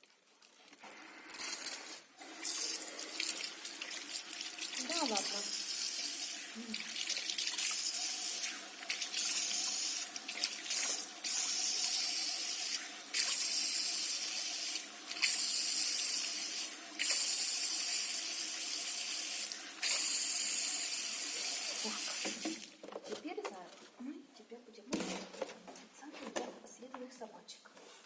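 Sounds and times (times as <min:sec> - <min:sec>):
shower sprayer water hissing: 0:00.8 - 0:22.8.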